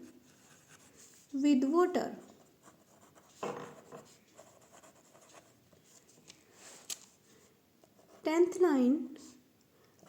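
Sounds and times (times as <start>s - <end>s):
pen scratching on paper: 0.2s - 1.1s, 2.2s - 5.6s.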